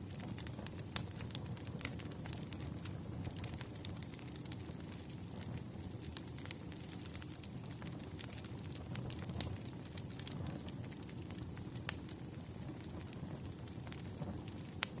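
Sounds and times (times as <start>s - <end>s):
firewood crackling and popping: 0.0s - 15.0s
low rumble of fire: 0.0s - 15.0s.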